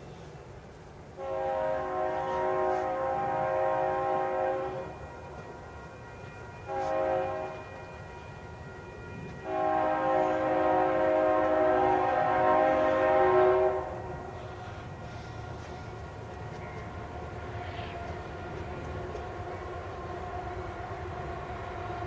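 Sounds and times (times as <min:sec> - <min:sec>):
locomotive air horn blasts: 0:01.2 - 0:08.4, 0:09.4 - 0:16.6.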